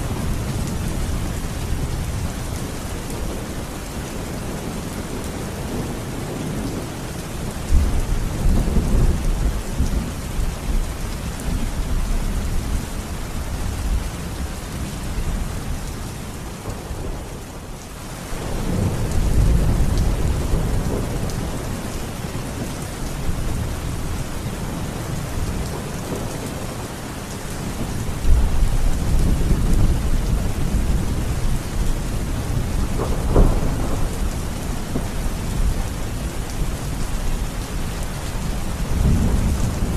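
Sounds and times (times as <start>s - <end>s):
steady rain falling: 0.0s - 39.9s
deep rolling thunder: 27.8s - 39.9s.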